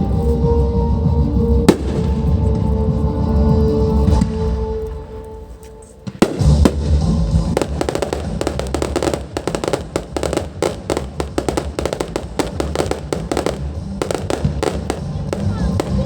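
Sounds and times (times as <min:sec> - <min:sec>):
low rumble: 0:00.0 - 0:16.0
firework bang: 0:01.7 - 0:02.4, 0:06.0 - 0:16.0
fireworks cracking and popping: 0:01.7 - 0:02.7, 0:05.7 - 0:16.0.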